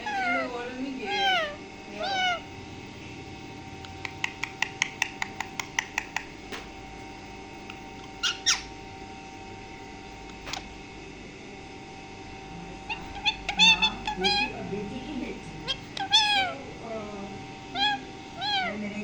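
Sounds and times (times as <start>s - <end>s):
parrot gliding call: 0.0s - 2.5s, 8.1s - 8.8s, 12.8s - 14.6s, 15.6s - 16.6s, 17.7s - 18.9s
parrot sharp squeaks: 1.1s - 2.5s, 8.0s - 8.8s, 12.9s - 14.6s, 15.6s - 16.6s, 17.7s - 18.8s
parrot clicking chirps: 3.8s - 6.4s, 7.6s - 8.7s, 15.6s - 16.4s.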